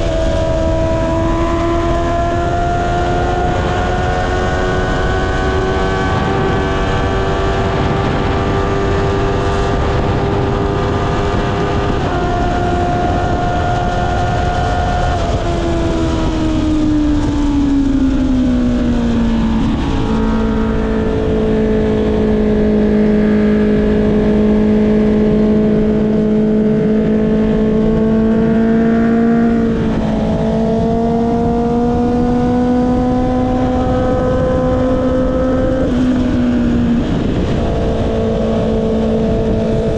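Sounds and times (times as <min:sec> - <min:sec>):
motorcycle engine revving: 0:00.0 - 0:39.9
wind noise: 0:00.0 - 0:39.9.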